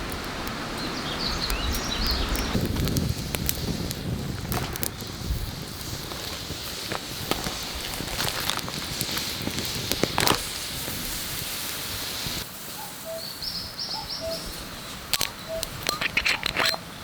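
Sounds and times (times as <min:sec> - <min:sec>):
steady hiss: 0:00.0 - 0:17.0
wood fire crackling: 0:00.0 - 0:17.0
birds chirping: 0:00.6 - 0:02.6, 0:12.8 - 0:17.0.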